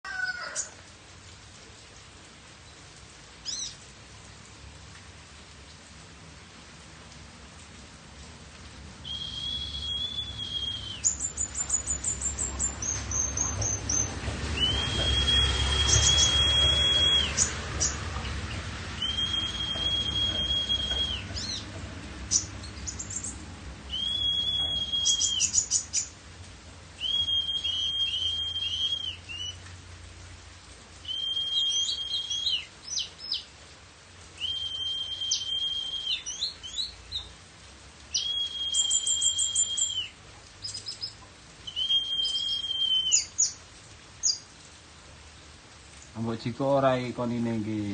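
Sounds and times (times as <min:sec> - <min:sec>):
sunbird singing: 0:09.1 - 0:26.2, 0:27.0 - 0:29.6, 0:31.0 - 0:33.5, 0:34.4 - 0:37.3, 0:38.1 - 0:43.6, 0:44.2 - 0:44.5.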